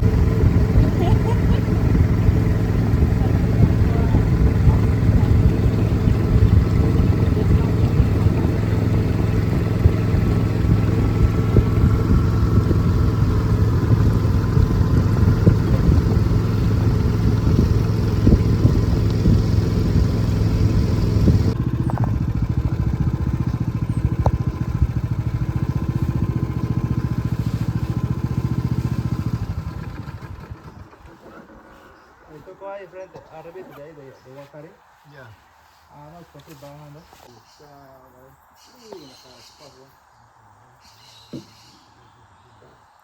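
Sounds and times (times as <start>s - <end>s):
boat motor running: 0.0s - 32.5s.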